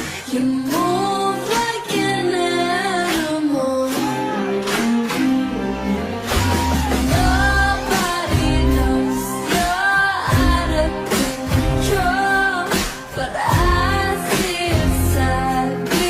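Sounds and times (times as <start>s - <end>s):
pop song with vocals: 0.0s - 16.0s.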